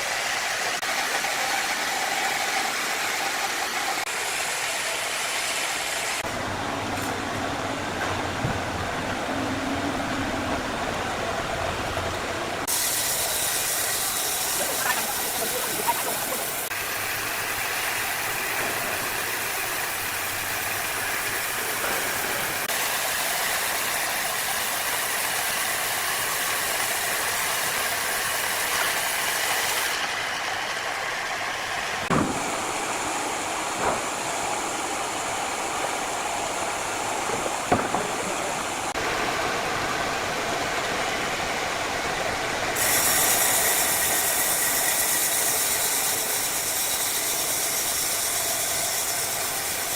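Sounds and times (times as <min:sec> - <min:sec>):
wood saw machinery running: 0:00.0 - 0:49.9
sharp knocks: 0:32.1 - 0:32.5, 0:37.4 - 0:38.4.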